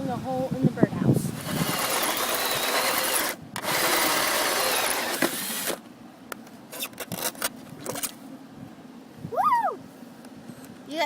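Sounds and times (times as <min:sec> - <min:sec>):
drill cutting through wood: 0:01.4 - 0:05.8.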